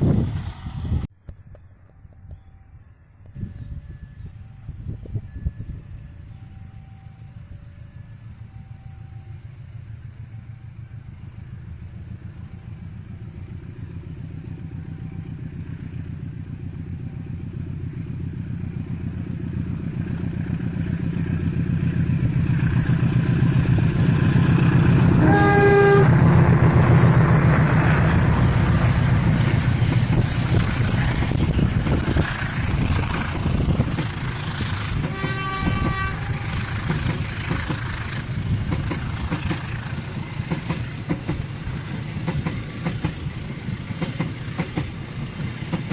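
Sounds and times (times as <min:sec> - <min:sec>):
locomotive engine passing: 0:03.8 - 0:45.9
train horn blast: 0:25.0 - 0:26.8, 0:34.9 - 0:37.0.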